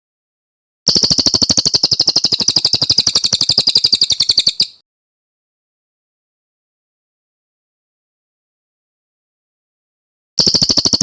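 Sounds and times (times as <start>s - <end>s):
songbird rolling trill: 0.9s - 4.8s.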